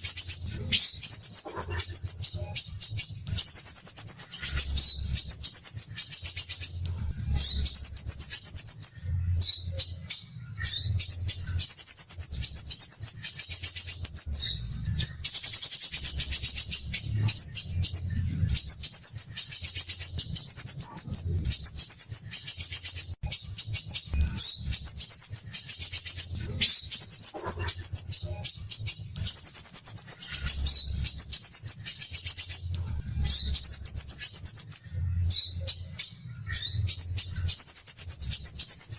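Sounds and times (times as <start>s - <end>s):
bird chattering trills: 0.0s - 38.9s.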